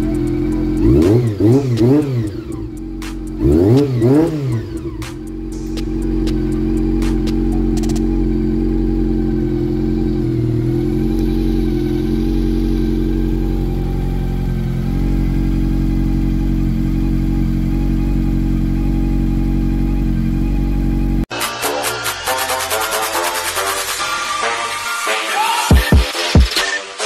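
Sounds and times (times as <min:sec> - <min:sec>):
motorcycle engine idling: 0:00.0 - 0:21.3.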